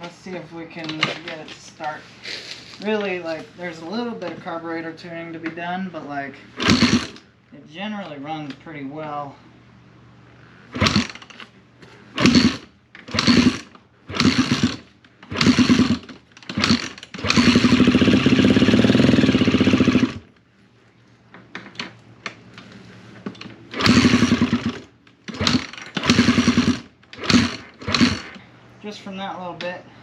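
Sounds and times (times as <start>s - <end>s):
dirt bike engine starting and running: 6.5s - 7.3s, 10.3s - 20.4s, 21.4s - 28.5s.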